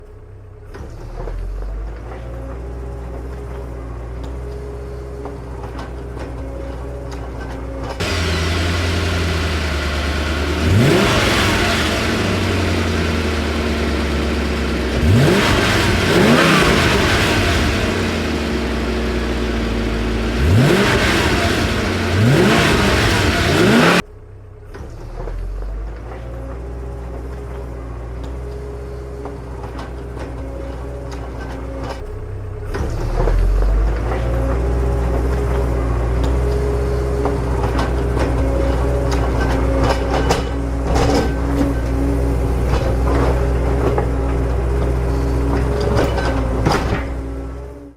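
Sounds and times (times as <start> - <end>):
diesel truck engine revving: 8.0 - 24.1.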